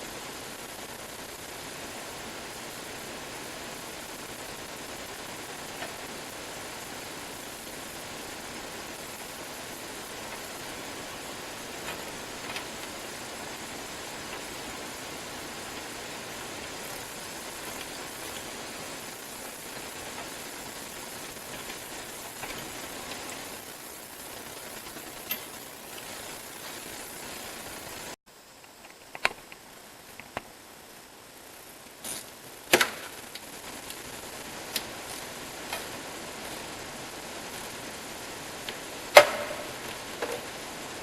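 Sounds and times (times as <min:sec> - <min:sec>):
steady hiss: 0:00.0 - 0:41.0
tool clicks and knocks: 0:39.2 - 0:40.5.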